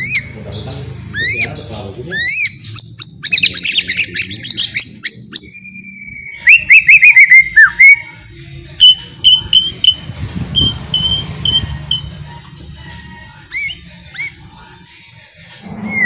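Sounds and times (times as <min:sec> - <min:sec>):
bird singing whistled notes: 0:01.1 - 0:08.2, 0:08.8 - 0:12.2, 0:13.5 - 0:14.4.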